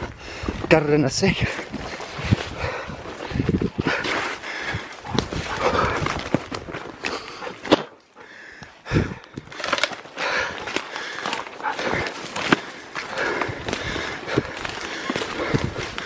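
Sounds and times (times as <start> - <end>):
footsteps through undergrowth: 0.0 - 16.0
leaves and branches crackling: 0.0 - 16.0
branch snapping: 8.6 - 16.0.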